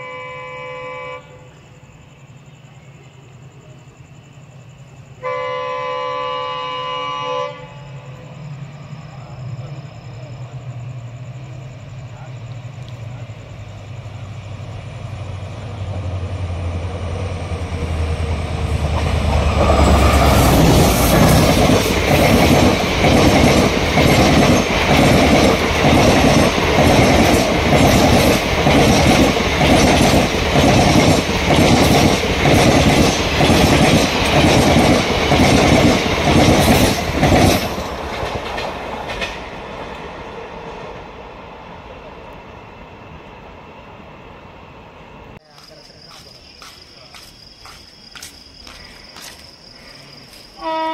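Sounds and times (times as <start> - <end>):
locomotive low drone: 7.7 - 38.6
train wheels clickety-clack: 17.7 - 40.0, 45.5 - 49.5.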